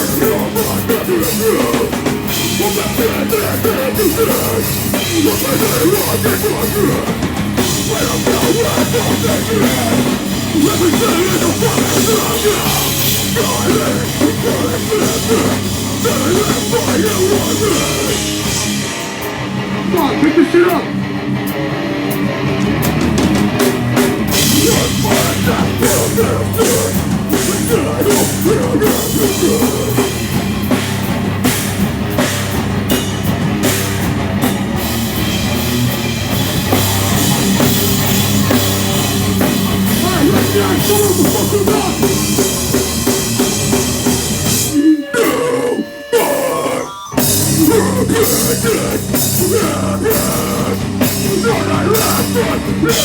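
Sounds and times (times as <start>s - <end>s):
rock band playing live: 0.0s - 53.0s.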